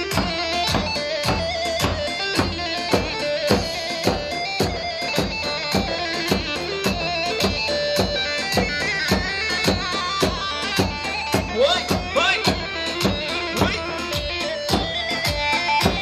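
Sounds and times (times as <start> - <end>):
dance music melody: 0.0 - 16.0
driving drum beat: 0.0 - 16.0.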